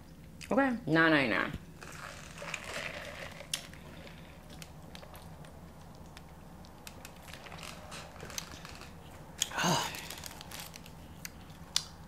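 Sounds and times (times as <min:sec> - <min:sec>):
person chewing food: 0:01.8 - 0:12.0.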